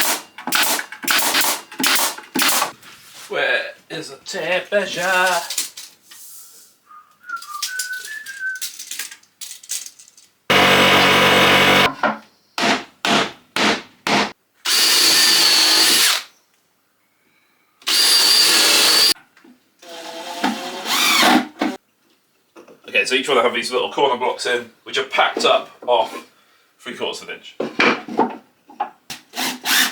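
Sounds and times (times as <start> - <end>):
power tool running in bursts: 10.5 - 11.9, 14.7 - 16.1, 17.9 - 19.1.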